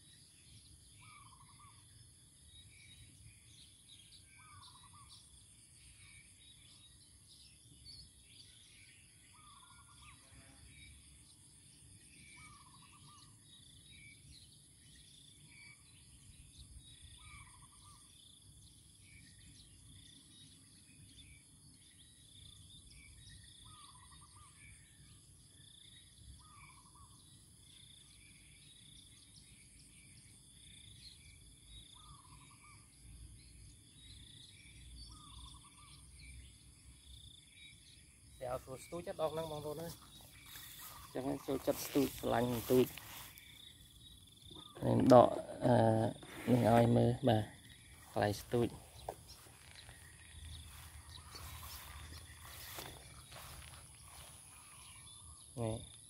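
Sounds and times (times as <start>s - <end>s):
small chirps: 39.6s - 56.0s.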